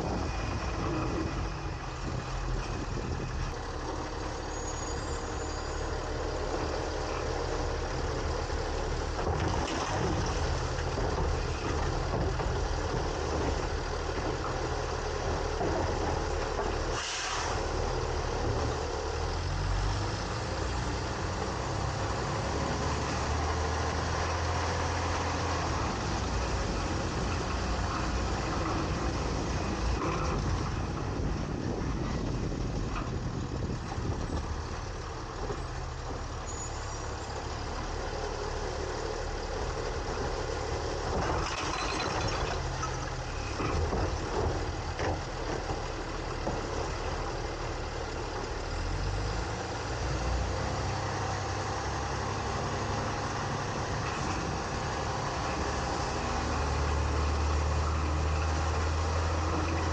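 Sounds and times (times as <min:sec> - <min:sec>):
truck engine rumble: 0:00.0 - 0:59.9
knocks and clatter: 0:09.1 - 0:16.9, 0:41.1 - 0:47.0.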